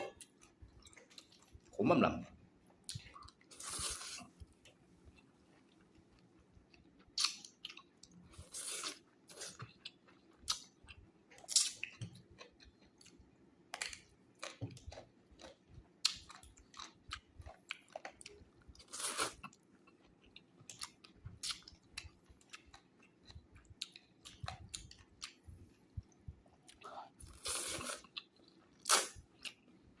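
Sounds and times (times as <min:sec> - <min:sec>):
chewing and crunching: 0:02.7 - 0:30.0.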